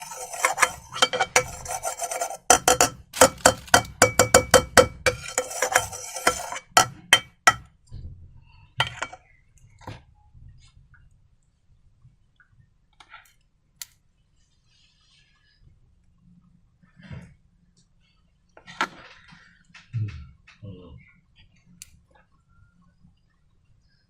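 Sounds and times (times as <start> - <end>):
containers and utensils clicking: 0.0 - 7.6.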